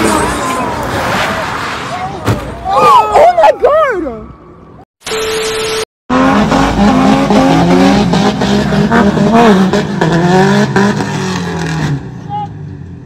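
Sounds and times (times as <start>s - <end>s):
road and tyre noise: 0.0s - 13.0s
car engine revving: 6.1s - 12.2s.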